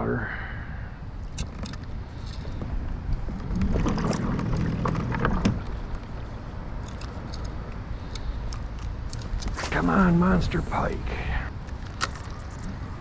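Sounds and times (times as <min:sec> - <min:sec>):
low hum: 0:00.0 - 0:13.0
wind rumbling on microphone: 0:00.0 - 0:13.0
choppy water: 0:03.3 - 0:06.0.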